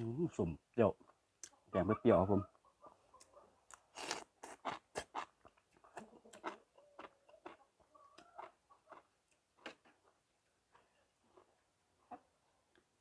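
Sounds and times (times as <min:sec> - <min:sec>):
person chewing noodles: 0:03.7 - 0:09.8.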